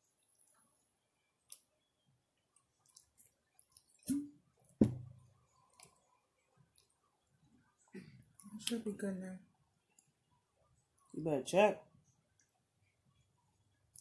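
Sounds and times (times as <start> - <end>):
wet mouth clicks chewing: 2.5 - 4.1.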